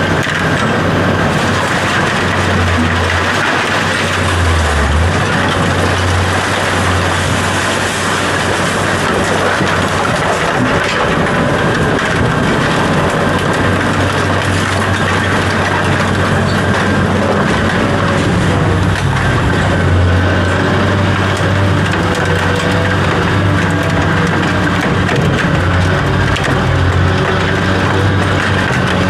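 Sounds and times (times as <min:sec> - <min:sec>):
continuous rattling: 0:00.0 - 0:29.0
heavy vehicle engine humming: 0:00.0 - 0:29.0.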